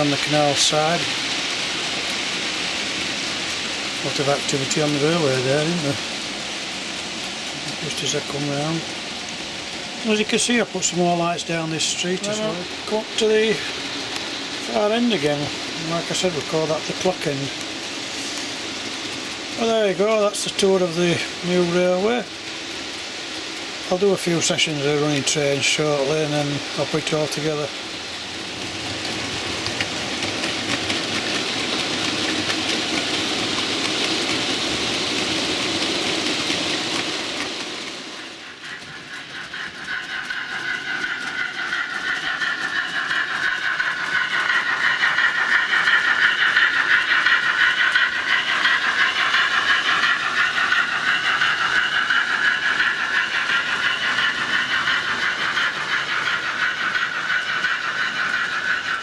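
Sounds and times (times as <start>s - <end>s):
wavering model locomotive sound: 0.0s - 59.0s.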